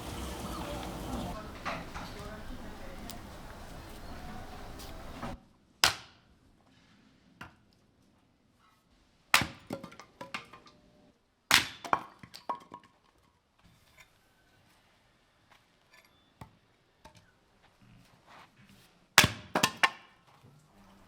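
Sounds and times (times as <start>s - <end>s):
hard knocks and clinks: 0.0s - 5.4s.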